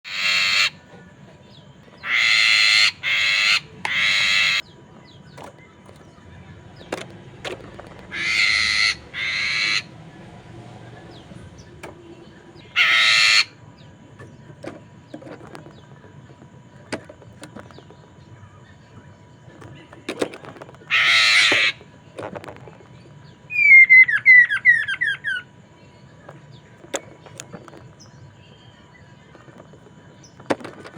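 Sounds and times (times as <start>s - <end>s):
loud harsh bird calls: 0.0s - 0.8s, 1.9s - 13.8s, 20.8s - 22.0s, 23.3s - 25.6s.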